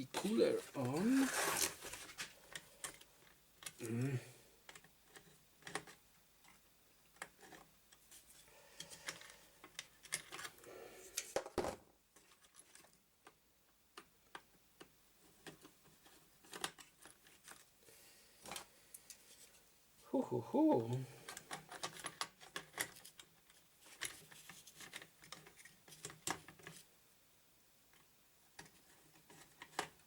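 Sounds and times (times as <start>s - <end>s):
metal and plastic parts clicking: 15.4s - 17.6s.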